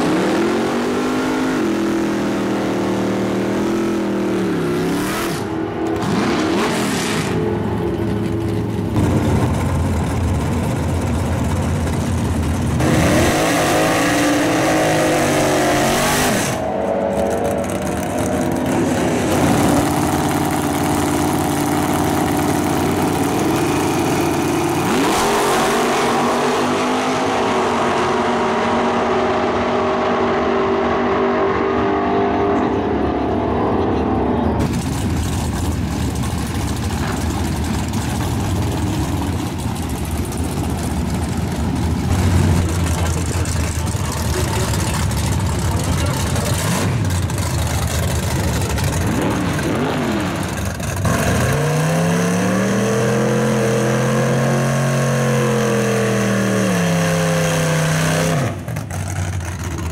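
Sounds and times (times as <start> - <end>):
engine revving up: 0.0 - 7.5, 12.8 - 34.9, 42.0 - 59.9
racing car engines roaring: 0.0 - 59.9.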